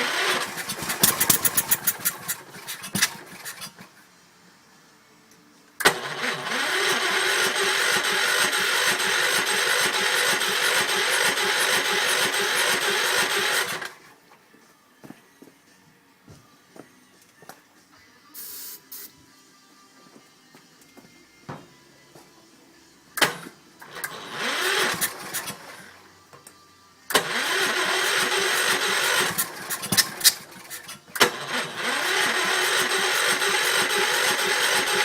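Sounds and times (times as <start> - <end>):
engine sputtering and running: 0.0 - 3.8, 5.8 - 14.0, 23.2 - 25.9, 27.1 - 35.0.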